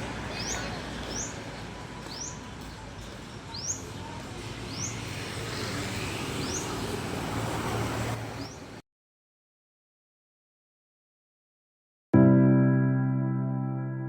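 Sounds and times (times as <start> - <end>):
traffic hum: 0.0 - 8.8
bird chirping: 2.0 - 5.0.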